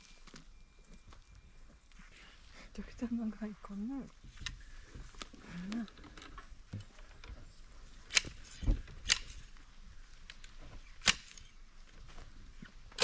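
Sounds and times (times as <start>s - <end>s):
sharp cracks: 10.3s - 11.5s.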